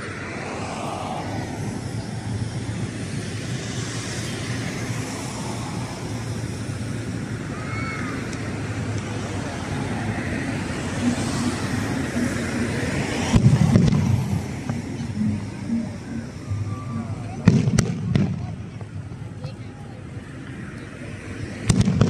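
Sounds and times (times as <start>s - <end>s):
distant fireworks rumbling: 1.1s - 22.0s.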